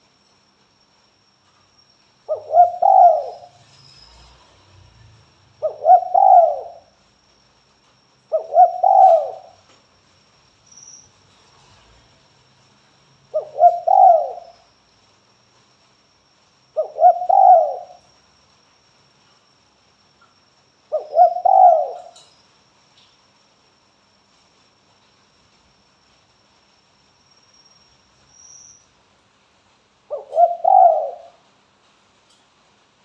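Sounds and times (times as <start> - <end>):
dove cooing: 2.3 - 3.6, 5.6 - 6.9, 8.3 - 9.6, 13.3 - 14.6, 16.8 - 18.0, 20.9 - 22.2, 30.1 - 31.4.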